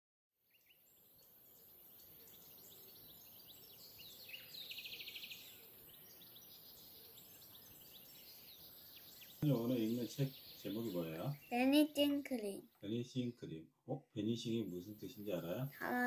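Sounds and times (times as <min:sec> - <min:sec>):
bird chirping: 0:00.4 - 0:16.0
bird trill: 0:00.5 - 0:12.4.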